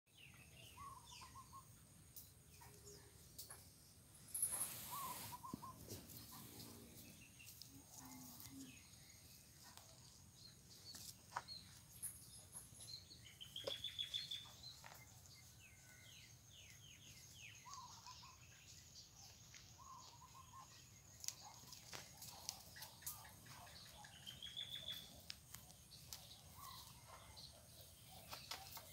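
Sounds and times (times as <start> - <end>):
faint birds chirping: 0.1 - 28.9
brief rustle: 4.2 - 6.8.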